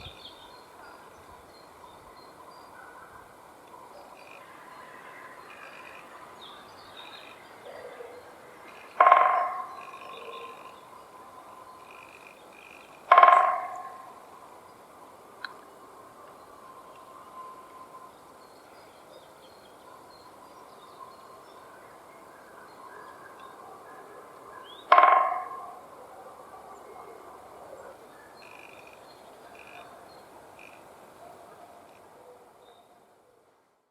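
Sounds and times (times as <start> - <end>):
faint songbird chirps: 0.0 - 33.9
woodpecker drumming: 4.1 - 4.5, 5.4 - 6.2, 8.6 - 14.2, 24.9 - 25.8, 28.4 - 29.9.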